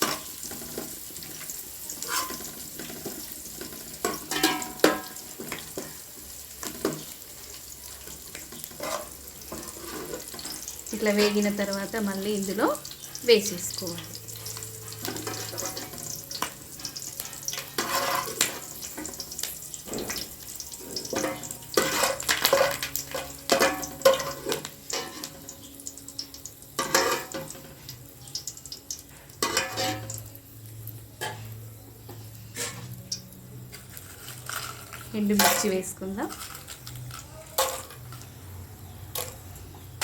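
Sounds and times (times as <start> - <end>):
metal spoon scraping pan: 0.0 - 20.2, 20.9 - 25.6, 26.8 - 27.6, 29.3 - 30.2, 32.5 - 33.0, 33.7 - 38.4
oil sizzling in a pan: 0.0 - 40.0.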